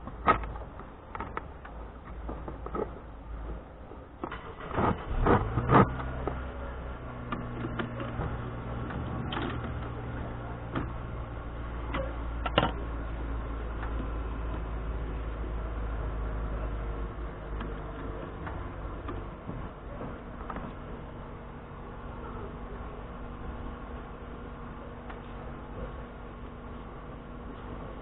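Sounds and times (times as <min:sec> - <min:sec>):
sharp clicks and knocks: 0:00.0 - 0:06.6, 0:07.2 - 0:11.2, 0:11.8 - 0:12.9, 0:17.5 - 0:20.9
scooter engine idling: 0:05.9 - 0:28.0.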